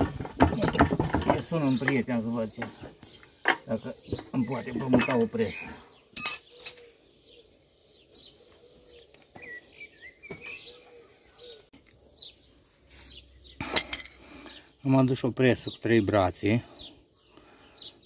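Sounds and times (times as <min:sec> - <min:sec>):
high bird chirps: 0:03.0 - 0:13.7.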